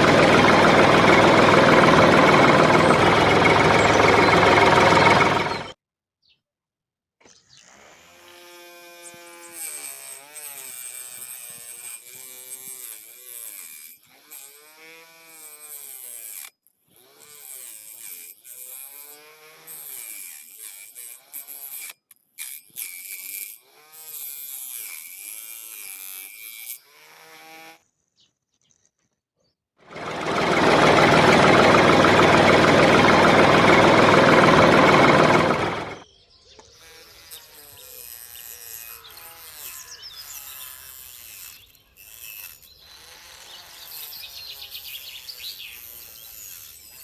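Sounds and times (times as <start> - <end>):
small electric motor whining: 0.0 - 5.8, 7.6 - 27.8, 36.6 - 47.0.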